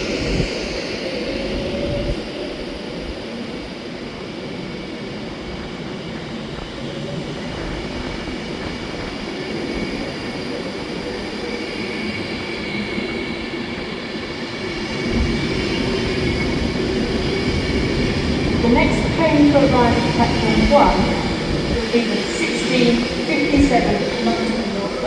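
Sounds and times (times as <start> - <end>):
train rumbling with faint whine: 0.0 - 25.0.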